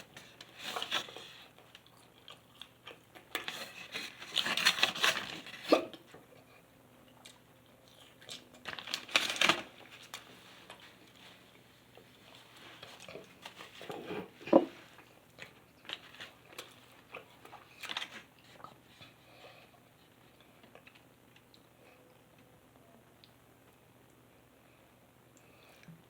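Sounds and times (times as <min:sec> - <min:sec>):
person chewing: 0:00.4 - 0:03.5.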